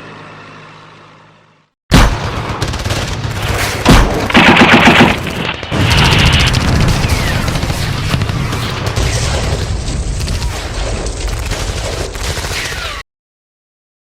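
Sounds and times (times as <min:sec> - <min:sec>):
explosion booms: 0:01.9 - 0:11.9
machine-gun fire: 0:01.9 - 0:13.0.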